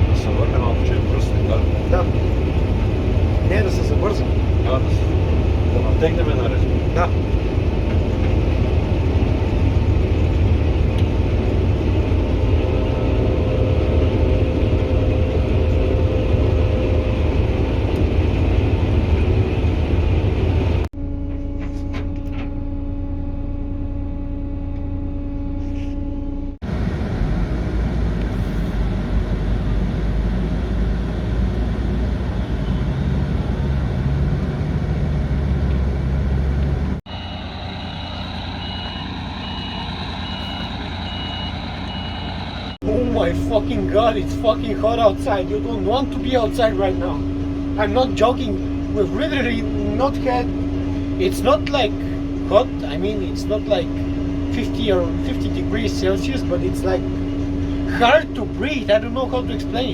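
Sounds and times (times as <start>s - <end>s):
diesel engines of heavy machinery: 0.0s - 59.9s
reversing alarm beeping: 37.1s - 59.9s.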